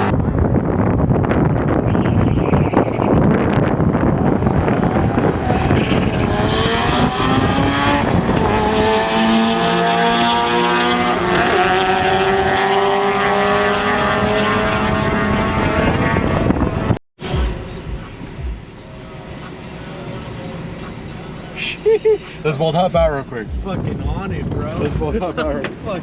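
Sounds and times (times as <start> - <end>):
race car engine accelerating: 1.9 - 21.4.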